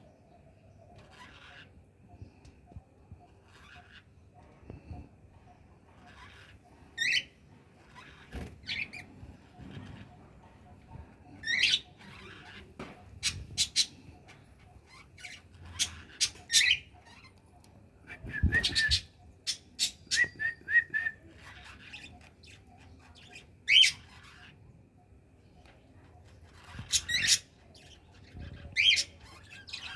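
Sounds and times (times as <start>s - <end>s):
bird squawks: 14.8s - 17.3s.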